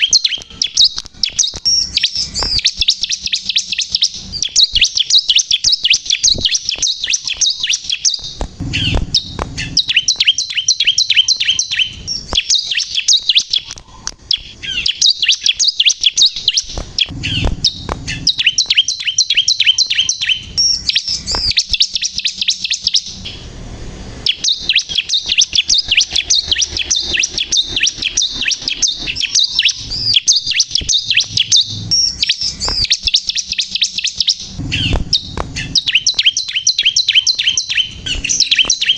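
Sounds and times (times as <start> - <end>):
bird chirping fast high notes: 0.0 - 38.9
low thumps: 8.2 - 10.3, 16.7 - 18.6, 34.5 - 36.2.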